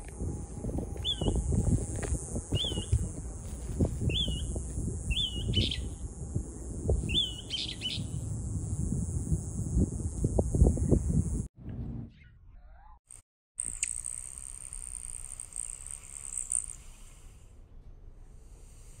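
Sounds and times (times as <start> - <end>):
steady low rumble: 0.0 - 12.2
harsh raspy bird notes: 1.0 - 1.4, 2.5 - 3.1, 4.0 - 6.0, 7.0 - 8.2
small bird chirping: 1.0 - 1.5, 2.5 - 3.1, 4.0 - 6.0, 6.6 - 8.2.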